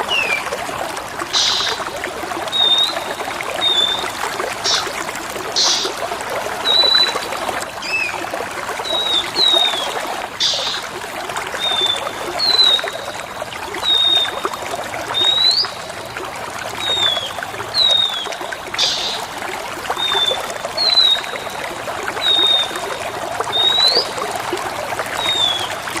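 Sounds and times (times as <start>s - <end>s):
water trickling: 0.0s - 26.0s
bird whistling: 1.3s - 1.8s, 2.5s - 5.0s, 5.6s - 6.0s, 6.6s - 7.2s, 8.9s - 10.8s, 11.6s - 13.0s, 15.2s - 15.8s, 16.9s - 19.2s, 23.5s - 24.1s, 25.2s - 25.7s
harsh bird chirps: 1.3s - 1.8s, 3.6s - 5.0s, 5.6s - 6.0s, 10.4s - 10.9s.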